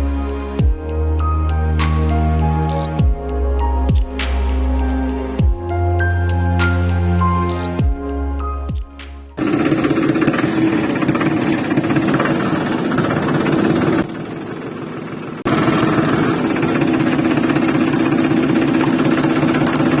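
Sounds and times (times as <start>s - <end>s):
small diesel engine knocking: 9.4s - 20.0s.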